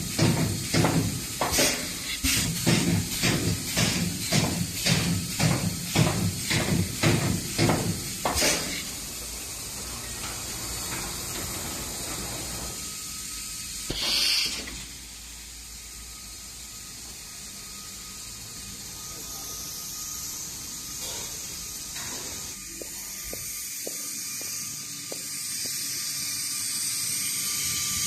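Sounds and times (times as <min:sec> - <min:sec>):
rhythmic machine strokes: 0:00.0 - 0:14.6
machine running noise: 0:00.0 - 0:28.0
short loud hiss: 0:13.9 - 0:15.0.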